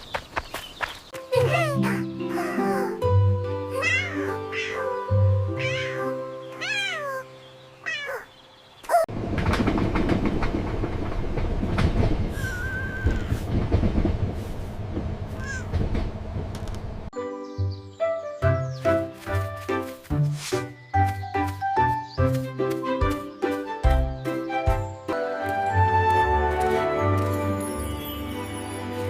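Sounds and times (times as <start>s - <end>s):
background music: 1.2s - 8.7s, 17.2s - 29.0s
cat meowing: 3.8s - 5.0s, 5.6s - 8.3s, 15.4s - 15.7s
dense rumble with rapid clatter: 9.1s - 17.1s.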